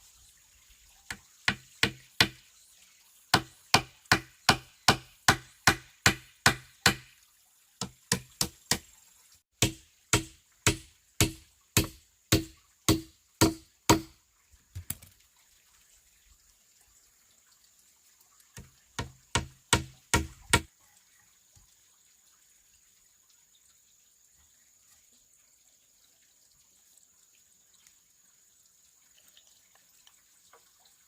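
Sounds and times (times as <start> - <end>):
bamboo being struck: 3.4 - 7.1, 9.6 - 14.2, 19.0 - 20.7.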